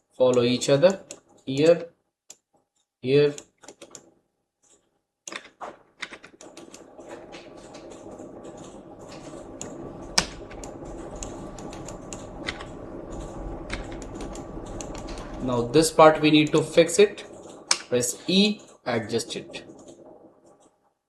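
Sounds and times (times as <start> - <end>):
keyboard keys clicking: 3.2 - 20.8
background hum: 5.4 - 20.9.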